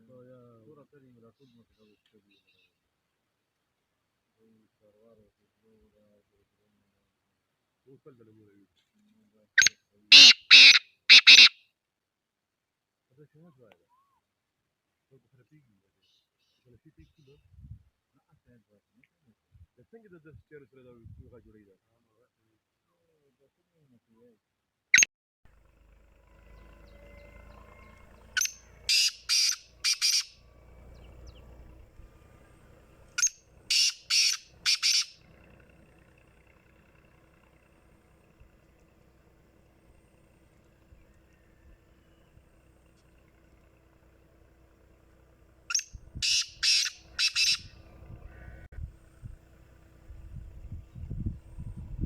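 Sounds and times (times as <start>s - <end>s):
bird harsh grating calls: 9.6s - 11.6s, 26.3s - 35.7s, 45.7s - 48.7s.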